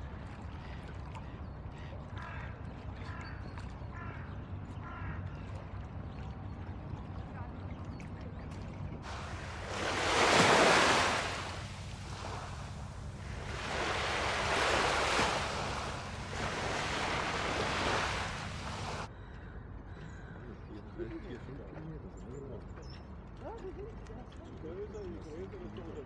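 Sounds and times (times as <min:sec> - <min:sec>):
steady low rumble: 0:09.1 - 0:10.2, 0:11.2 - 0:19.1
surf washing onto beach: 0:09.1 - 0:19.1.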